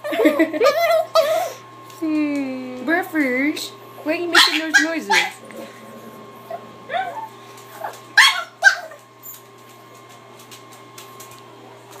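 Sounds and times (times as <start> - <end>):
dog whimpering yips: 6.9 - 9.4.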